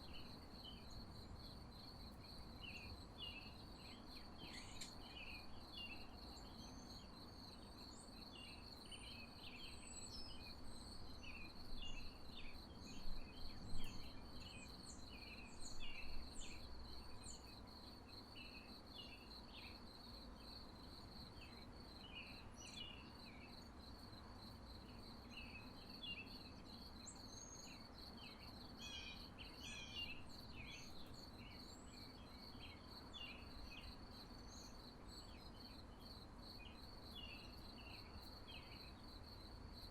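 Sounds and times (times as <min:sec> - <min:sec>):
crickets trilling: 0:00.0 - 0:09.3
low background noise: 0:00.0 - 0:39.9.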